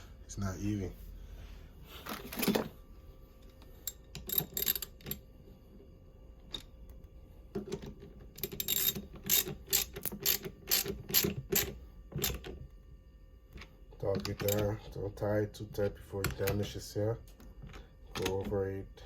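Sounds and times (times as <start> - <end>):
ratchet wrench clicking: 3.8 - 5.1, 8.4 - 12.4.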